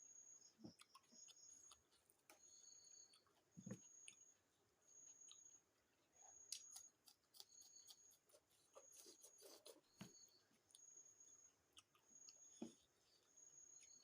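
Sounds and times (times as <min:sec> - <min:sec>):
chewing clicks and smacks: 0:00.6 - 0:04.3, 0:11.7 - 0:12.5.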